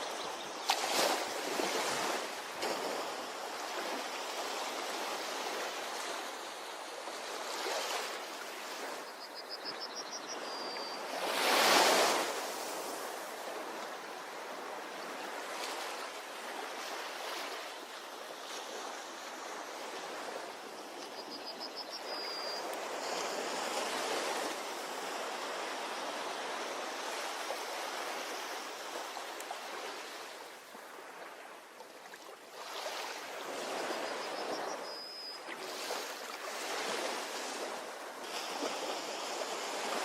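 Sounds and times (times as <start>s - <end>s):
sea waves washing onto beach: 0.0s - 9.2s, 11.0s - 21.3s, 22.0s - 34.6s.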